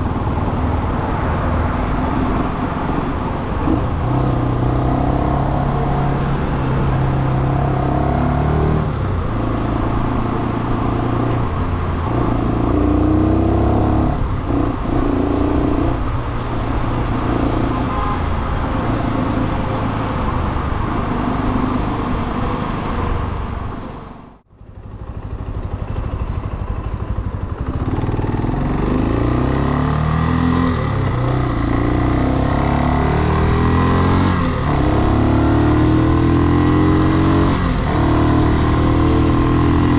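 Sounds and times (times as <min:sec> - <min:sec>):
motorcycle engine shifting gears: 0:24.6 - 0:39.9.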